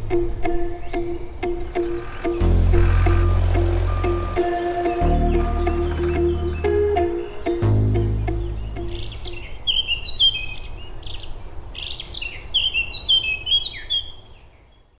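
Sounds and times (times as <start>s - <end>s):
birds chirping: 0.0s - 14.9s
music: 0.1s - 9.4s.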